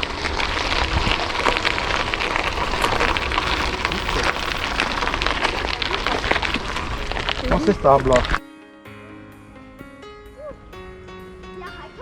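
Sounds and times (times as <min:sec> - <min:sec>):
tyres rolling over rough path: 0:00.0 - 0:08.4
wind buffeting microphone: 0:00.0 - 0:08.4.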